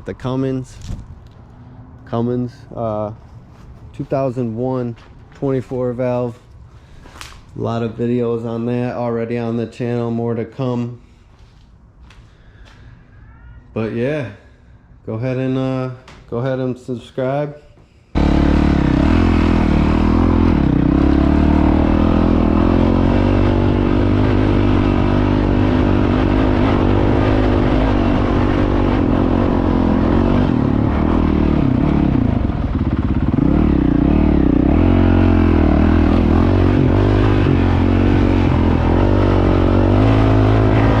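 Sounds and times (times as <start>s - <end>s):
motorcycle engine running loud: 18.2s - 41.0s.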